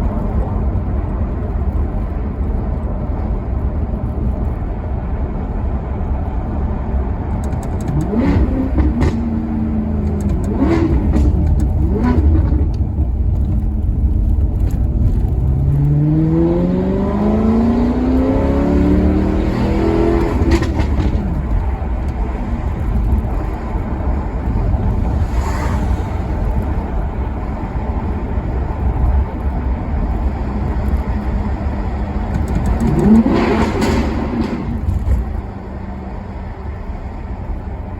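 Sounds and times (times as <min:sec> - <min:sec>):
car engine revving: 0:07.3 - 0:27.3, 0:30.1 - 0:36.9.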